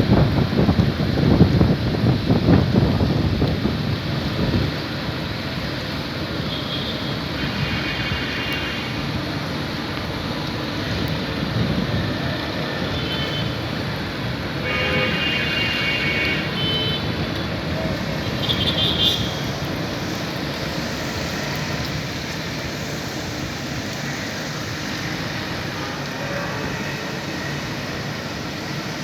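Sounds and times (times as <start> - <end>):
street traffic: 0.0 - 29.0
vehicle horn: 6.5 - 9.0, 14.6 - 17.1, 18.4 - 19.4.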